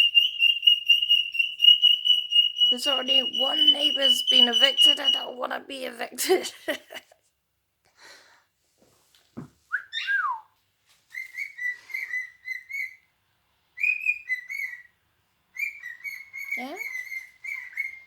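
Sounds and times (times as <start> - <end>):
cockatiel whistling: 0.0 - 5.4, 9.7 - 10.5, 11.1 - 13.1, 13.8 - 18.0.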